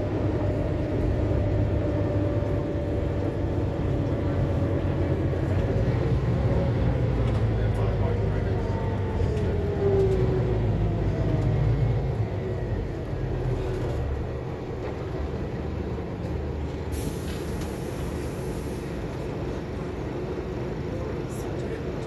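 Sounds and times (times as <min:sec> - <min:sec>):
bus diesel engine rumble: 0:00.0 - 0:22.0
air brake hiss: 0:16.9 - 0:19.0.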